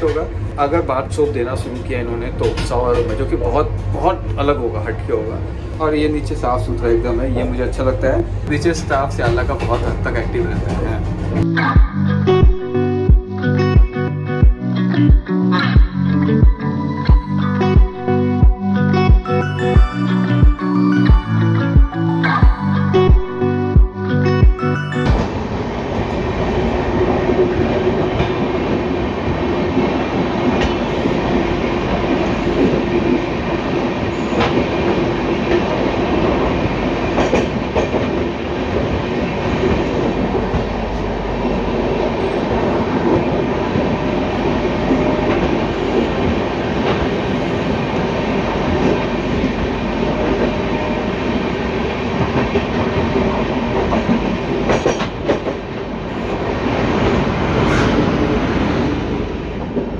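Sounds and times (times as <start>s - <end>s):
train rail running noise: 0.0s - 11.7s, 24.5s - 59.9s.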